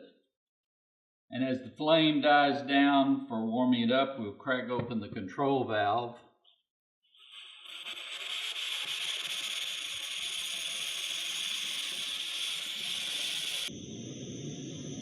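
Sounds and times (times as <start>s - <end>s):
camping stove hissing: 7.2s - 15.0s.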